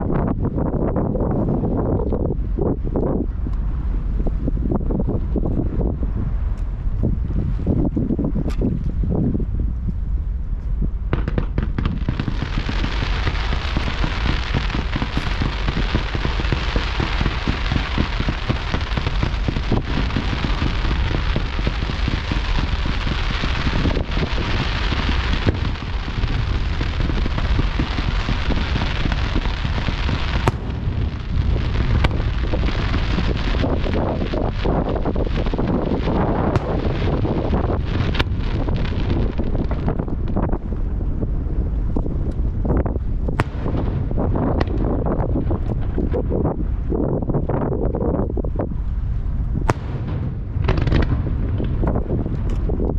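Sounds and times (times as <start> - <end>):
low rumble: 0.0 - 52.9
fireworks crackling: 11.1 - 41.1, 42.6 - 46.9, 49.5 - 52.9.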